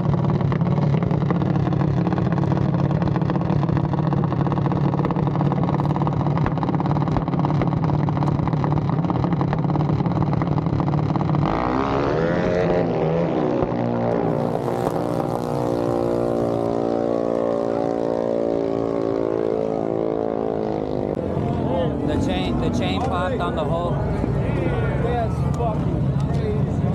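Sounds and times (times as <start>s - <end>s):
mini bike engine revving: 11.4s - 18.0s.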